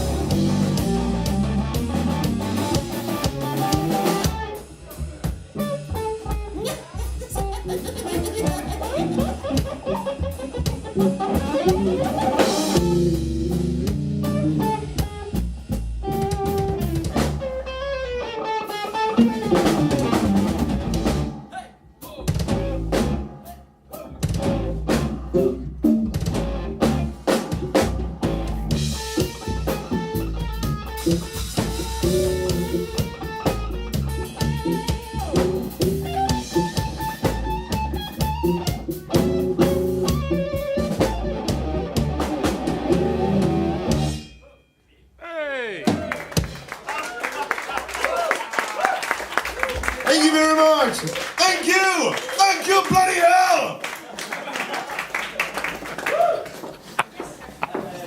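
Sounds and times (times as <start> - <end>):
electric guitar: 0.0 - 21.5, 22.3 - 23.5, 24.2 - 44.2
drum kit playing: 0.0 - 44.4, 45.8 - 46.9.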